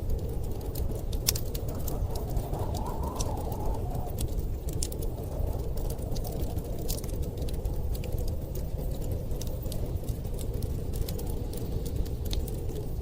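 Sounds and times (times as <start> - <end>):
blizzard wind rumble: 0.0 - 13.0
wood fire crackling and popping: 0.0 - 13.0.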